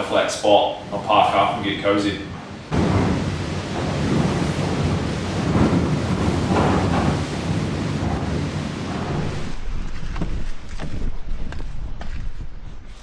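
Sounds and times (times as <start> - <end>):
storm wind gusting on microphone: 0.0 - 13.0
rain: 0.8 - 9.6.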